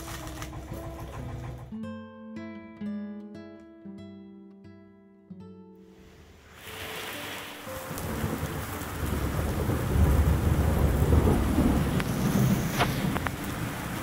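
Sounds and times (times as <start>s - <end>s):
heavy rain: 6.0s - 14.0s
thunder rumbling: 6.5s - 14.0s.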